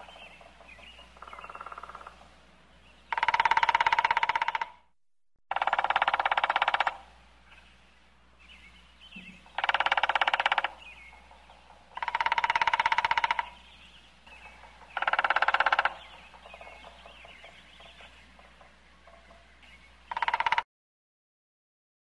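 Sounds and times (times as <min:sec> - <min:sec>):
faint bird chirps: 0:00.0 - 0:02.2, 0:06.6 - 0:20.6
woodpecker drumming: 0:00.0 - 0:02.4, 0:03.0 - 0:07.6, 0:09.1 - 0:20.7.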